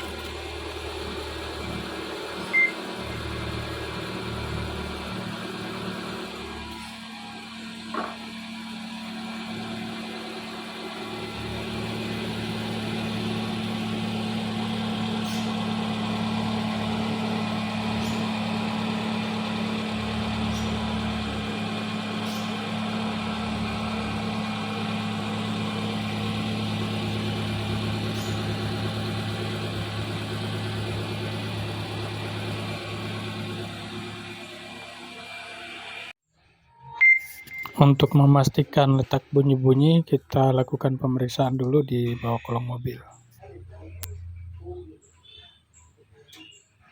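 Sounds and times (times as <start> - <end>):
car engine idling: 0.0 - 6.6, 7.4 - 36.1.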